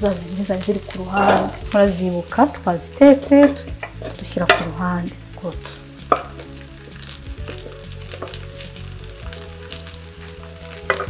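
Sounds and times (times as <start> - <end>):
fried rice sizzling in a wok: 0.0 - 11.0
utensil tapping a pan: 3.3 - 4.8, 6.0 - 6.5.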